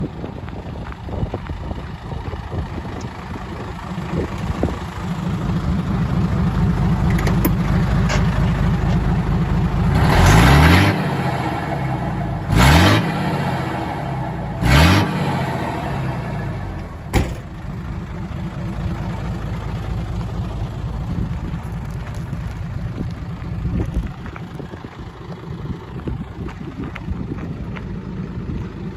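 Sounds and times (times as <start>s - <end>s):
diesel engine idling: 0.0s - 28.9s
engine revving: 9.7s - 17.4s.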